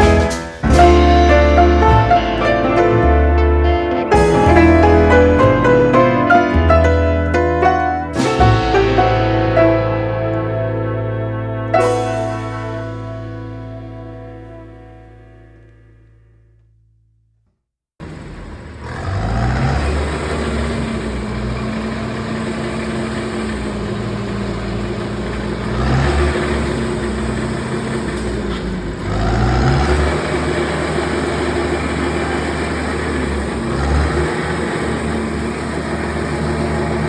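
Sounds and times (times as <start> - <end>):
heavy machinery engine revving: 0.0 - 15.1, 18.0 - 37.0
closing music: 0.0 - 16.4.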